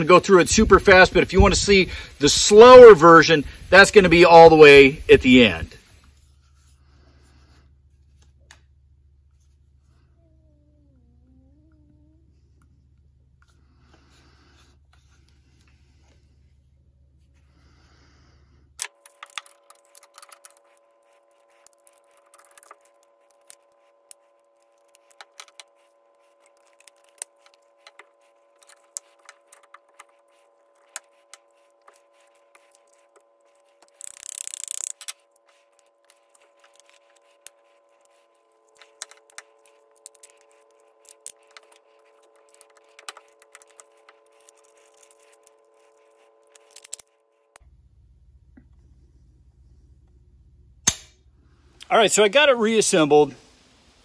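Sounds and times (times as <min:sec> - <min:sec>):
faint steady hum: 0:00.0 - 0:54.0
gun parts clicking and clattering: 0:18.8 - 0:20.7, 0:33.8 - 0:37.2, 0:38.7 - 0:47.1.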